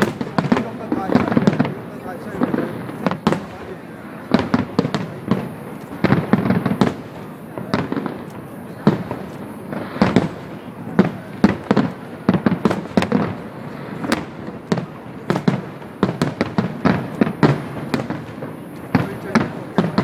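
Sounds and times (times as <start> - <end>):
fireworks bursting with sharp bangs: 0.0 - 20.0.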